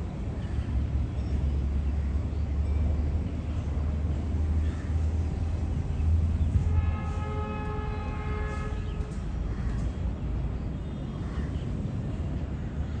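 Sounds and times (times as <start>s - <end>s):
freight train rumbling on track: 0.0s - 13.0s
multi-tone train horn: 6.5s - 9.4s.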